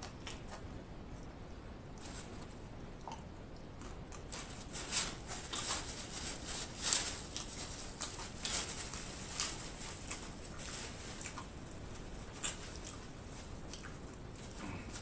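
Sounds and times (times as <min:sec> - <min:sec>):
crunchy chewing of chips: 0:00.0 - 0:01.4, 0:02.0 - 0:15.0.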